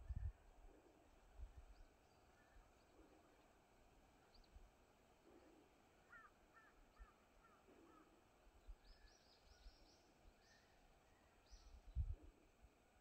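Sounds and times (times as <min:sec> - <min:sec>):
faint bird calls: 0:01.7 - 0:03.6, 0:05.2 - 0:11.8.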